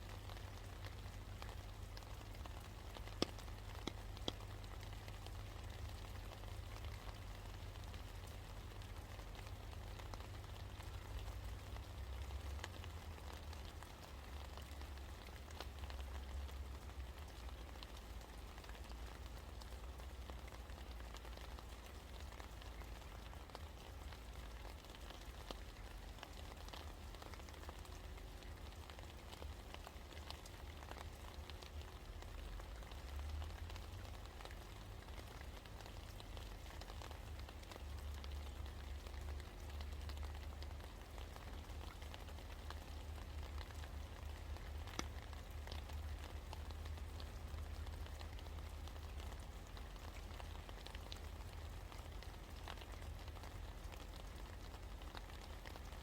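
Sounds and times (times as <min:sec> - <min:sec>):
rain falling: 0:00.0 - 0:56.0
drops ticking: 0:00.7 - 0:05.4.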